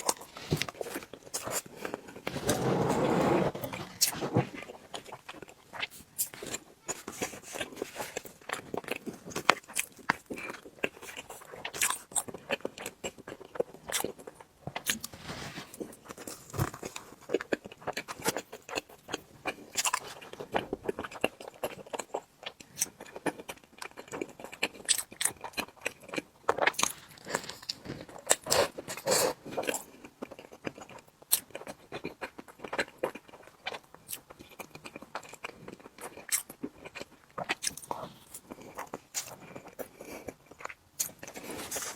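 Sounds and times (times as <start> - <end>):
biting and chewing: 3.6 - 41.9.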